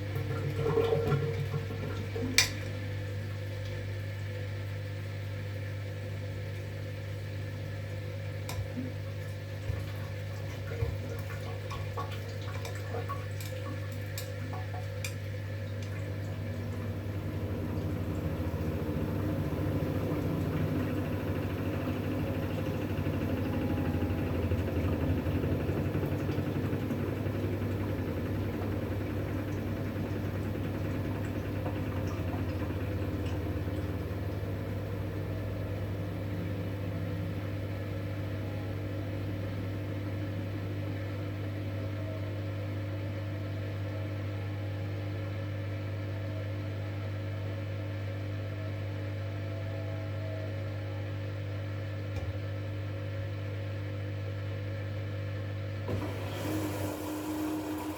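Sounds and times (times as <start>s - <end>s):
washing machine humming: 0.0s - 57.9s.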